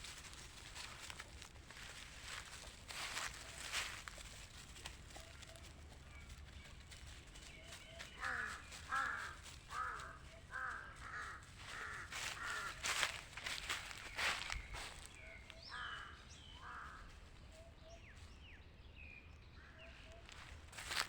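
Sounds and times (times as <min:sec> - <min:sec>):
footsteps crunching: 0:00.0 - 0:17.3, 0:20.2 - 0:21.0
crows cawing: 0:08.1 - 0:13.8, 0:15.5 - 0:17.2.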